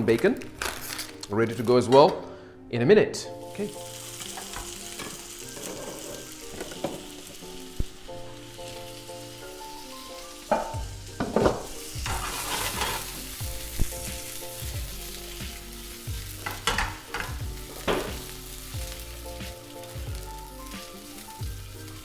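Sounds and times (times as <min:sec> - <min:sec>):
sausage and bacon sizzling in a pan: 0:03.3 - 0:22.0
utensil scraping and knocking a pan: 0:10.5 - 0:13.2, 0:16.4 - 0:18.3.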